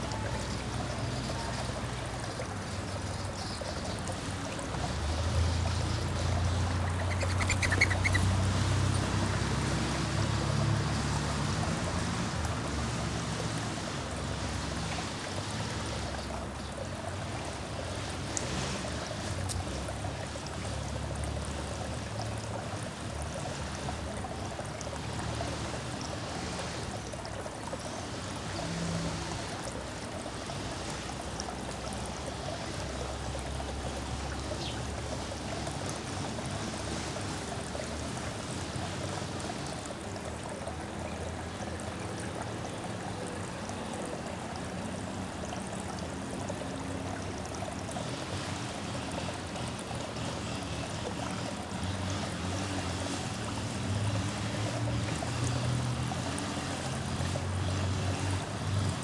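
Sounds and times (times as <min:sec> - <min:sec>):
trickling stream-like hiss: 0:00.0 - 0:59.0
bird call: 0:07.0 - 0:08.3.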